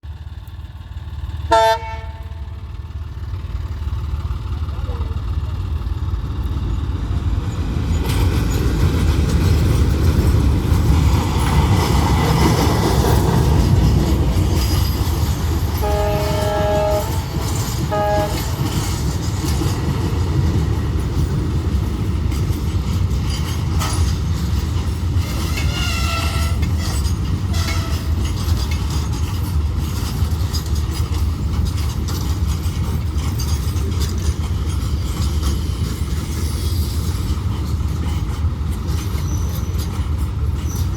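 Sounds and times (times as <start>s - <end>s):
train rumbling past: 0.0s - 40.9s
wheels clattering on rails: 0.1s - 40.9s
train horn: 1.5s - 2.6s, 15.8s - 18.9s, 25.2s - 26.9s, 27.5s - 28.1s.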